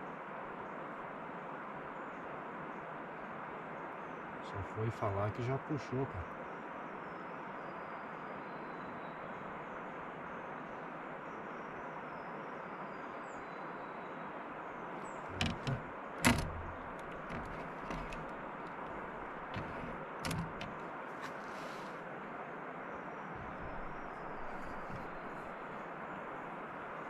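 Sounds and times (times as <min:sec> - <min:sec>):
sharp knocks and clicks: 0:15.2 - 0:21.7, 0:23.4 - 0:25.6.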